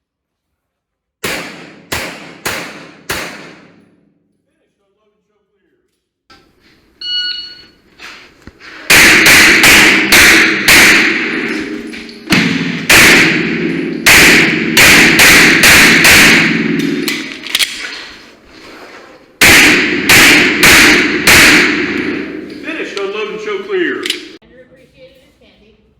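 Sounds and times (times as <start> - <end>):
pistol shots: 1.2 - 3.9, 8.9 - 17.9, 19.4 - 22.8.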